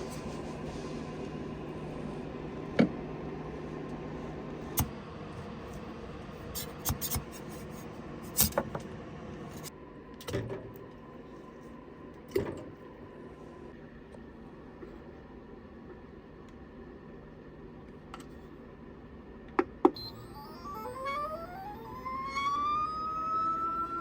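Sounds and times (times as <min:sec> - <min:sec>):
steady low hum: 0:00.0 - 0:10.1, 0:18.5 - 0:24.0.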